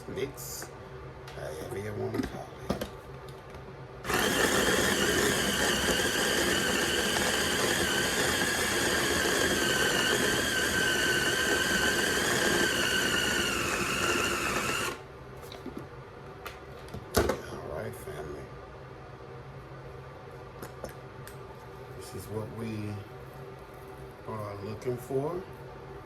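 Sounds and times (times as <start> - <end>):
food processor motor whine: 4.0 - 15.0.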